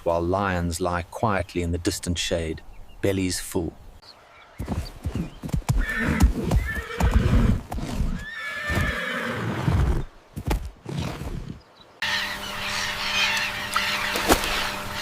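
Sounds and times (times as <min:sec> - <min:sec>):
hoofbeats of a herd: 0:04.6 - 0:11.5
horse whinnies: 0:05.7 - 0:10.1.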